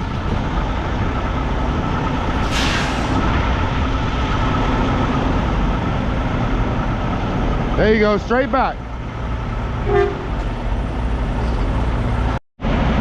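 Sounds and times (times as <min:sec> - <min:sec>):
diesel truck engine running: 0:00.0 - 0:13.0
air hiss: 0:02.4 - 0:03.2.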